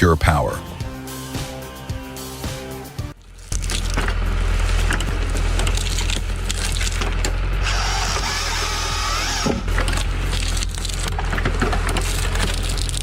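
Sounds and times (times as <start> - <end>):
deep engine drone: 0.6 - 13.0
high whine: 3.1 - 10.5
wood snapping and splitting: 3.2 - 13.0.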